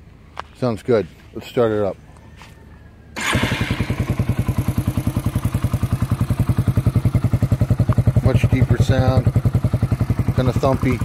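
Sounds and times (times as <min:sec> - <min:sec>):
motorcycle engine starting and idling: 0:03.1 - 0:11.0.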